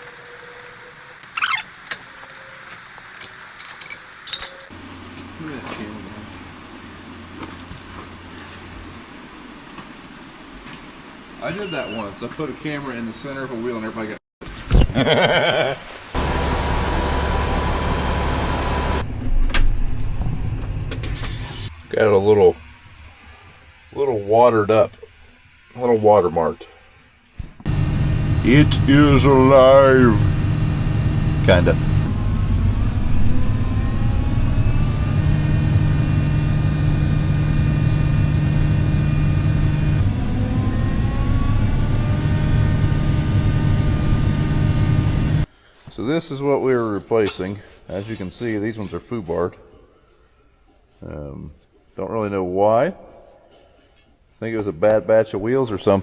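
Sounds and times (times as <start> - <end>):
tractor engine running: 0.0 - 4.7, 16.2 - 19.2, 27.7 - 45.5.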